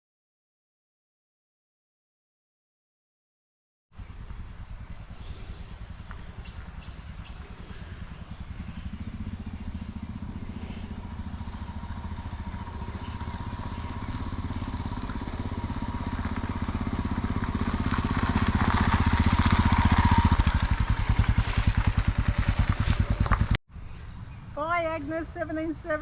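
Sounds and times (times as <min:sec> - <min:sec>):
vehicle engine running: 0:04.0 - 0:23.6.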